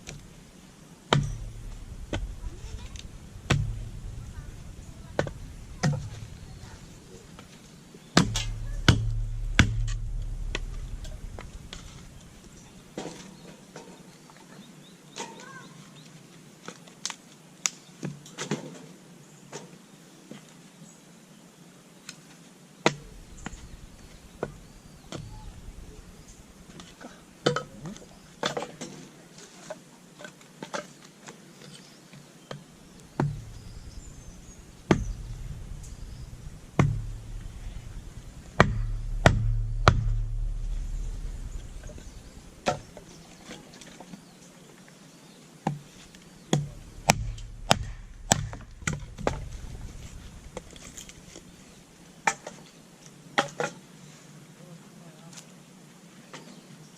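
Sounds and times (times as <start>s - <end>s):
blade knocking on wood: 1.1s - 6.3s, 8.2s - 11.9s, 33.2s - 42.9s, 46.5s - 50.8s.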